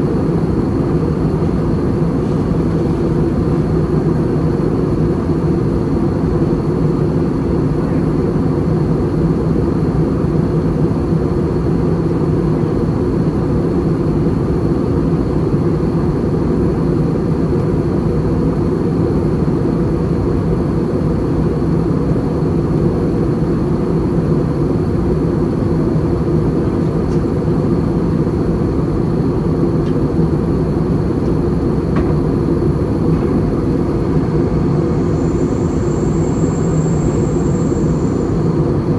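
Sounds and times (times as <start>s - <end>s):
engine and airflow rumble: 0.0s - 38.9s
faint high steady whine: 27.4s - 38.9s.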